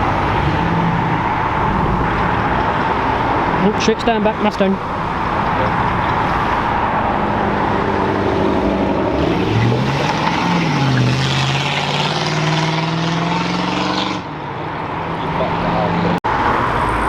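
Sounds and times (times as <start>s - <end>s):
car engine accelerating hard: 0.0s - 14.3s.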